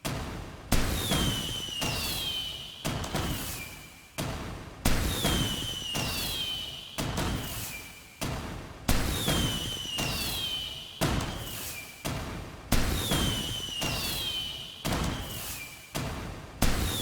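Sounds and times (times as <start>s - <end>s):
falling firework whistles: 0.8s - 3.9s, 5.0s - 8.2s, 9.0s - 12.0s, 12.8s - 15.9s, 16.6s - 17.0s.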